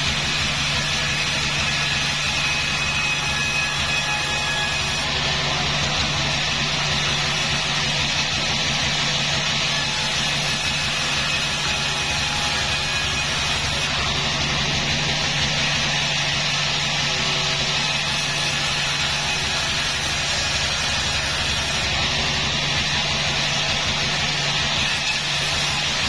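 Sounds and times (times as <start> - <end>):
rushing machinery noise: 0.0 - 26.0
engine drone: 5.1 - 9.7, 12.1 - 17.9, 18.8 - 24.8.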